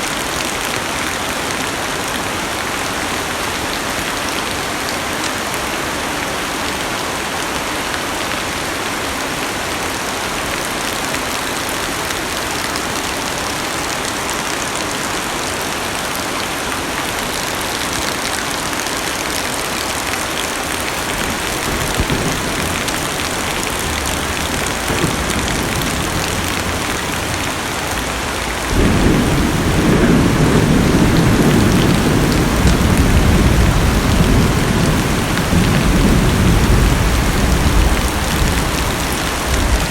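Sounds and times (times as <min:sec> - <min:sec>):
heavy rain on car roof: 0:15.9 - 0:39.9
rolling thunder: 0:21.0 - 0:39.9.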